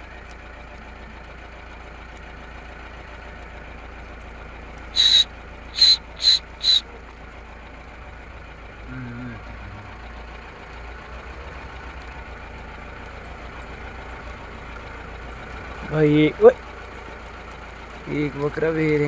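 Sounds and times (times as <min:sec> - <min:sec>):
engine idling hum: 0:00.0 - 0:19.0
short shrill whistles: 0:05.0 - 0:06.8.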